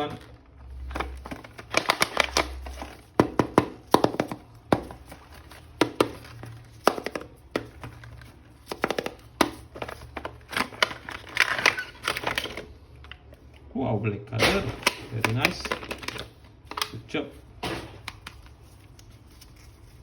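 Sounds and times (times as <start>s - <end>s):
packaging crinkling: 0.0s - 3.4s, 4.0s - 12.8s, 14.8s - 17.0s.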